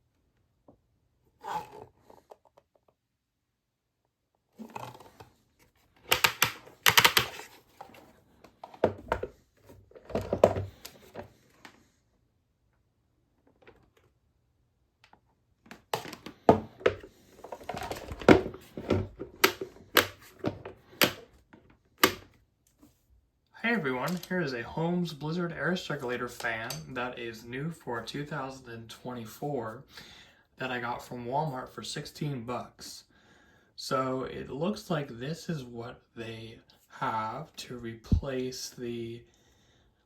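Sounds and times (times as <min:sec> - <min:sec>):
handling clicks and knocks: 0:05.9 - 0:11.3, 0:15.1 - 0:22.4.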